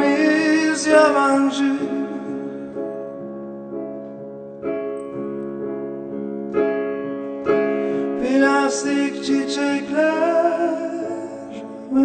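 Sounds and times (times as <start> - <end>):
keyboard playing chords: 1.6 - 10.1.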